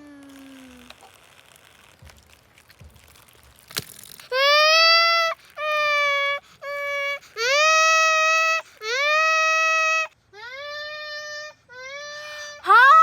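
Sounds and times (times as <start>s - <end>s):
high-pitched crying calls: 4.3s - 13.0s.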